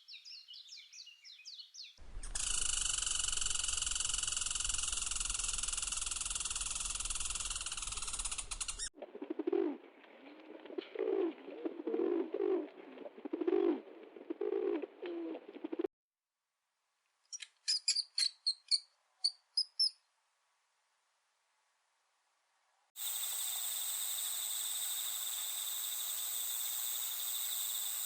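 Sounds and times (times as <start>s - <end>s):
pigeon cooing: 9.0s - 15.9s.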